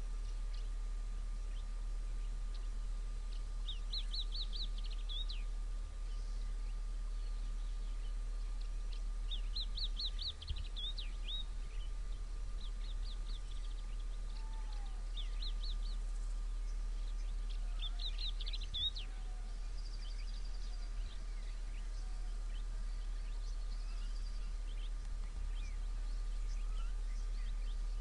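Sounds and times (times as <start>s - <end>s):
songbirds chirping: 0.0s - 28.0s
steady low hum: 0.0s - 28.0s.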